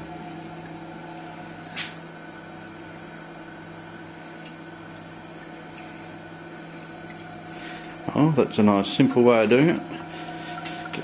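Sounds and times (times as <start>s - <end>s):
electrical hum of fogger: 0.0s - 11.0s.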